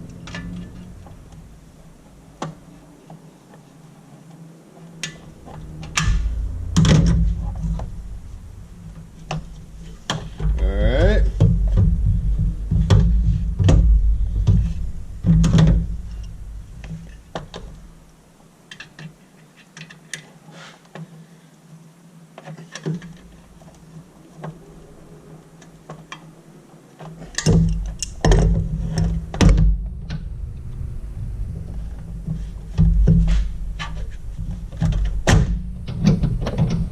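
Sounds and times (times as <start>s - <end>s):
heavy low rumble: 4.5s - 18.4s, 23.3s - 36.9s.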